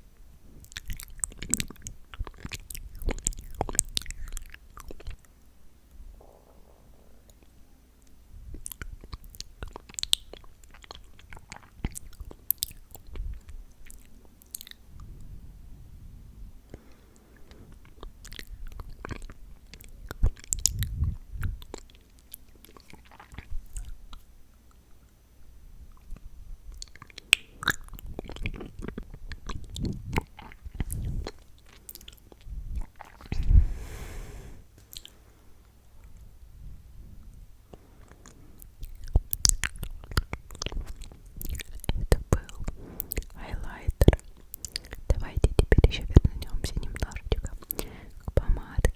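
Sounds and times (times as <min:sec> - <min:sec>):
chewing-like mouth sounds: 0:00.5 - 0:05.3, 0:08.4 - 0:15.2, 0:16.7 - 0:25.1, 0:25.9 - 0:33.7, 0:34.8 - 0:35.2, 0:37.7 - 0:48.9
wet lip and tongue clicks: 0:00.6 - 0:05.2, 0:08.6 - 0:14.8, 0:37.7 - 0:48.9
wet mouth clicks and smacks: 0:38.2 - 0:48.9.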